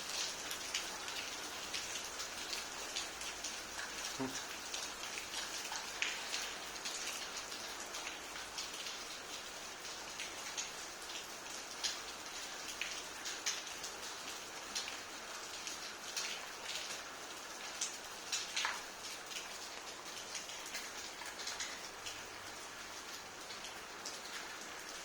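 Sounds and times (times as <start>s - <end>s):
steady rain hiss: 0.0s - 25.0s
drips on hard surface: 3.3s - 7.3s.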